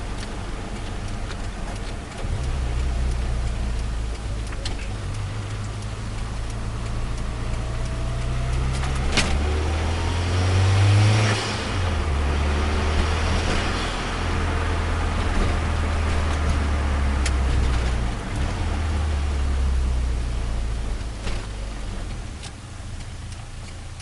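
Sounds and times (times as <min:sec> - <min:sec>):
car engine revving: 0:00.0 - 0:24.0
sharp click: 0:08.5 - 0:09.5.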